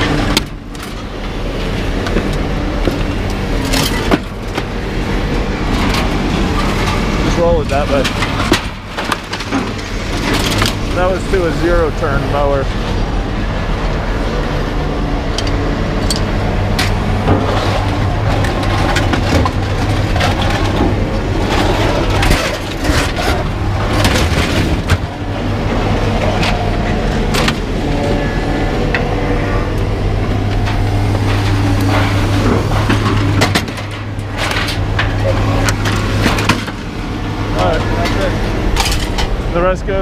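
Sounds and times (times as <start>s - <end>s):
vehicle engine running: 0.0s - 40.0s
scrap metal knocking and clanking: 15.2s - 39.7s.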